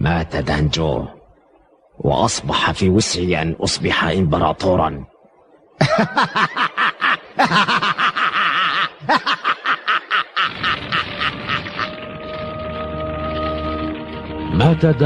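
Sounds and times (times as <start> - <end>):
man laughing: 5.8 - 12.0.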